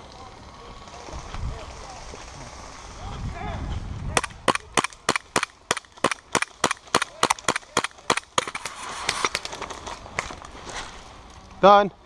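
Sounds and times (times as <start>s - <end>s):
airsoft gun firing: 4.2s - 8.7s.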